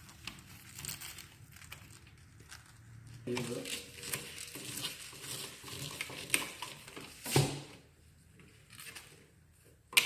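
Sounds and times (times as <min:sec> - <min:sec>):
wires and tools clicking and rustling: 0:00.0 - 0:07.5.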